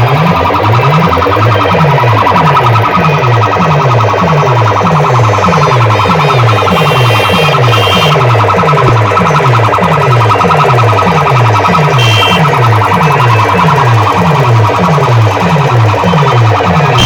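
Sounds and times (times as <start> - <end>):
siren-like electronic bass sweep: 0.0 - 17.0
steady high electronic tone: 0.0 - 17.0.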